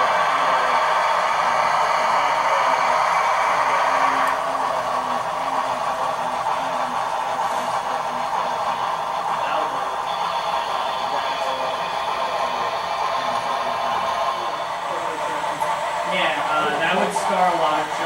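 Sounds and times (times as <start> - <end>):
model steam locomotive sound: 0.0 - 18.0.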